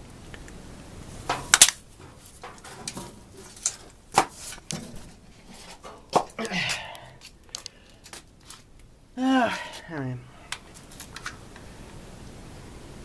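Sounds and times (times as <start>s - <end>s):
furnace parts clicking and knocking: 1.3s - 7.7s.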